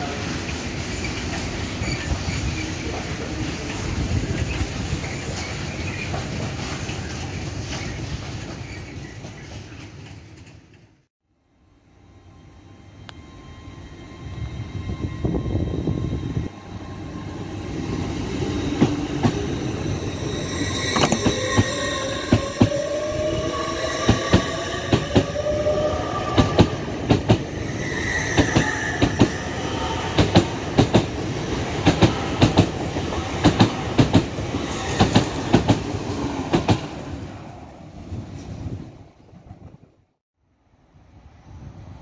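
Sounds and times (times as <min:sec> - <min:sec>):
train rumble: 0:12.3 - 0:40.1.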